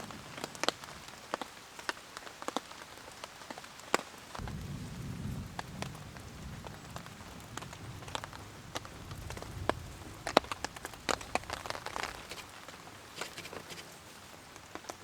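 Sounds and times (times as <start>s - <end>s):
heavy raindrops tapping: 0.0s - 15.0s
distant thunder rumble: 4.4s - 13.2s.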